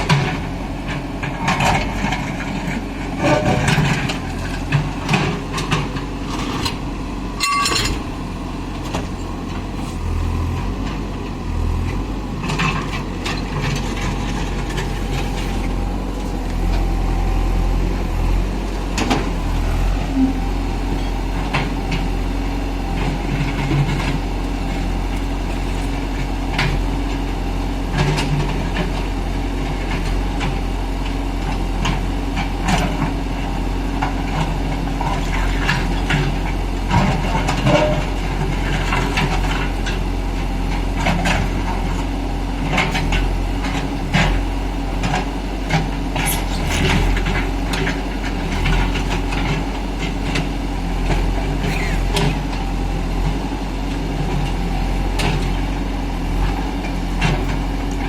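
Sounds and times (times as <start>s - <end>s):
heavy diesel machinery running: 0.0s - 58.0s
metallic clanks and knocks: 4.7s - 8.2s.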